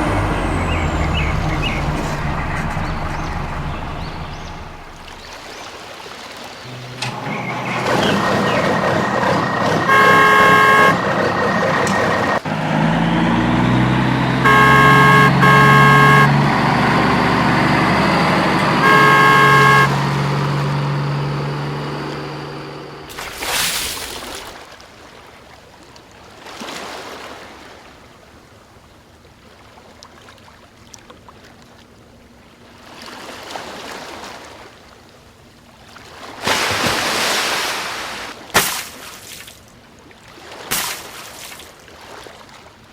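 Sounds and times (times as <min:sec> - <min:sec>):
toy truck horn beeping: 0:00.0 - 0:05.2, 0:06.7 - 0:23.2
electronic engine sound: 0:00.0 - 0:05.4, 0:06.7 - 0:23.2
water spraying: 0:14.5 - 0:24.5.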